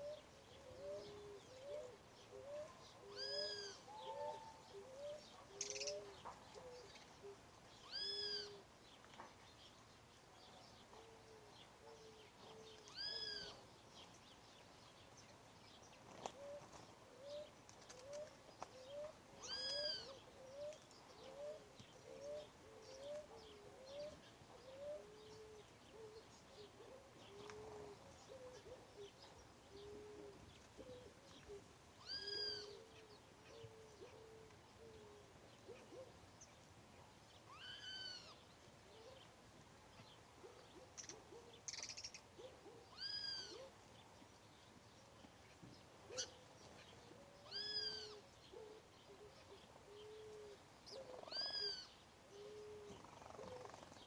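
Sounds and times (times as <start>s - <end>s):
birds hooting low notes: 0.0s - 8.7s, 16.4s - 36.6s, 39.9s - 54.0s.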